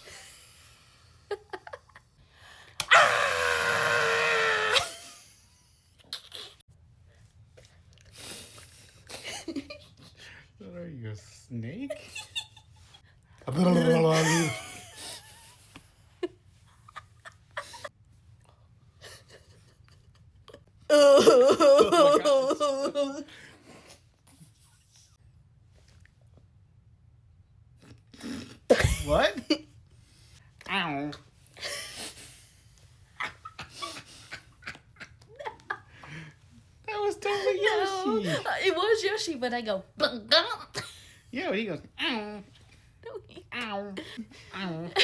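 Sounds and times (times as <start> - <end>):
person howling like an animal: 2.9 - 5.0, 20.9 - 23.2.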